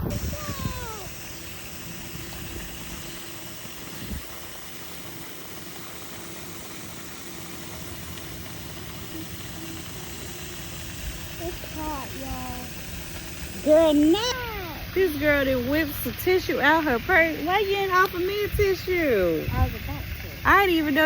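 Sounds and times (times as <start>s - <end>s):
wind on microphone: 0.0s - 4.6s, 18.3s - 21.0s.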